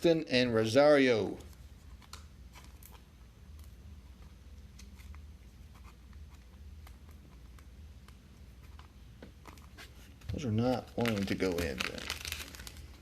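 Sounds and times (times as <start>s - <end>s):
low steady hum: 0.0s - 13.0s
rustling of trading cards: 1.3s - 13.0s.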